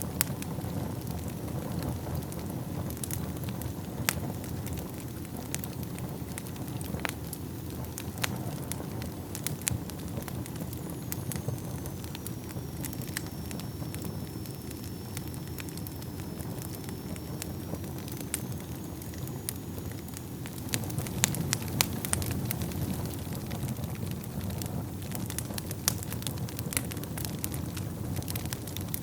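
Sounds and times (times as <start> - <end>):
fire crackles and pops: 0.0 - 29.0
low rumble of flames: 0.0 - 29.0
faint high whistle: 10.2 - 21.5.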